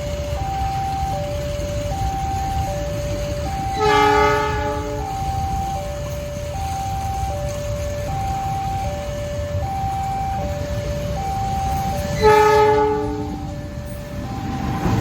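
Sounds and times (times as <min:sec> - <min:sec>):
approaching train rumble: 0:00.0 - 0:15.0
level-crossing alarm two tones: 0:00.0 - 0:15.0
train horn: 0:03.5 - 0:05.4, 0:11.7 - 0:13.7.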